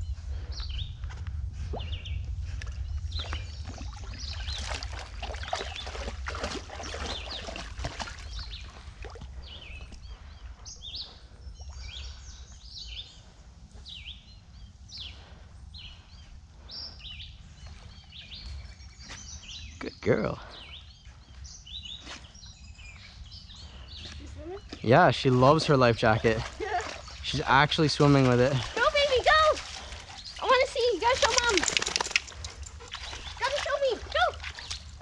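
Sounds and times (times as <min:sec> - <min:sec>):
water noise: 0:00.0 - 0:13.5, 0:23.6 - 0:35.0
small birds chirping: 0:00.0 - 0:35.0
wind rumble on microphone: 0:00.0 - 0:35.0.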